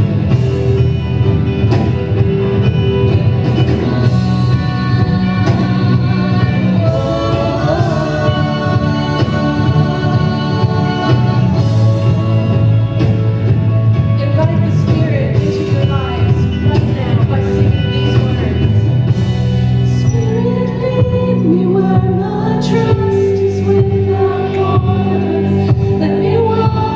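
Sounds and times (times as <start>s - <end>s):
drums: 0.0s - 26.9s
guitar: 0.0s - 26.9s
person singing: 3.6s - 13.2s.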